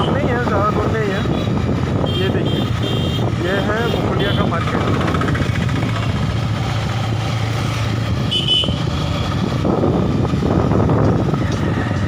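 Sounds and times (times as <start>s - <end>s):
road and wind noise: 0.0s - 12.0s
vehicle engine running: 3.8s - 12.0s.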